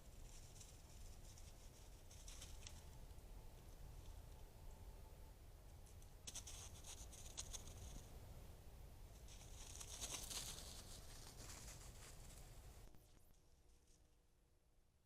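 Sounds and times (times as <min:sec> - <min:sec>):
faint rustling: 0:00.0 - 0:04.4, 0:09.1 - 0:14.1
light pattering: 0:00.0 - 0:04.5, 0:05.8 - 0:08.1, 0:09.1 - 0:14.0.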